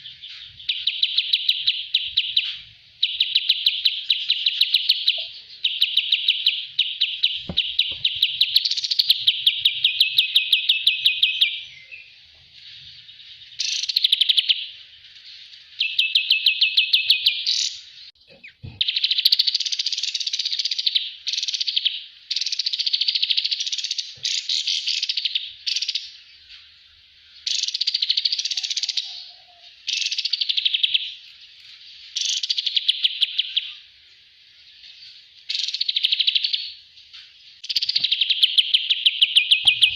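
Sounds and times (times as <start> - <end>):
songbird chattering trills: 37.6 - 39.9.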